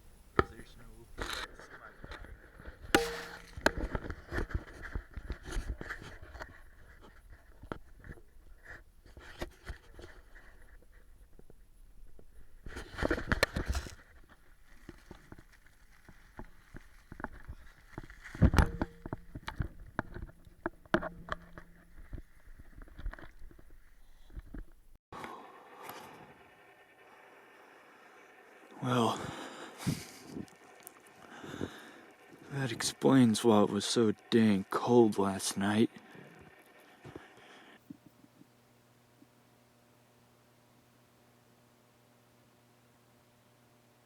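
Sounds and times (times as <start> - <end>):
clicks scrapes and rustling: 0.0 - 24.8.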